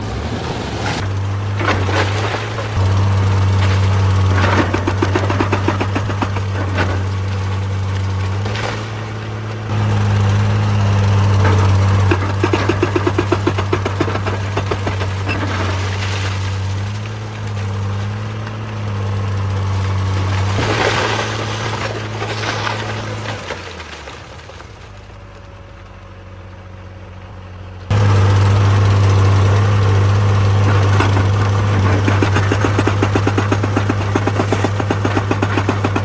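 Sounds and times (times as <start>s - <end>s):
excavator diesel engine under load: 0.0s - 36.0s
rock scraping: 28.8s - 36.0s.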